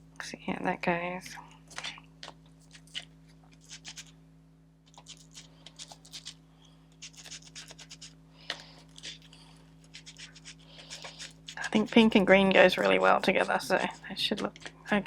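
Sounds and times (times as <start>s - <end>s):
faint hum: 0.0s - 15.0s
ink applicator scratching on paper: 3.6s - 4.1s, 4.9s - 6.4s, 7.0s - 15.0s.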